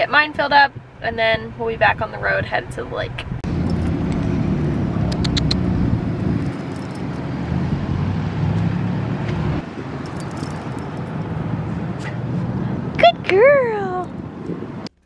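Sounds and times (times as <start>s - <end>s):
vehicle engine rumbling: 0.0s - 15.0s
light metallic jingle: 3.5s - 7.3s, 10.0s - 11.4s.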